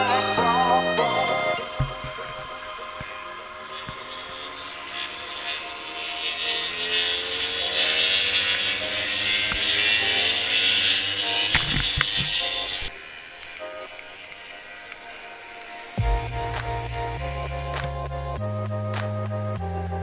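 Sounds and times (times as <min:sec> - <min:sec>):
motorcycle engine running: 0:01.6 - 0:02.6
short knock: 0:01.7 - 0:02.6.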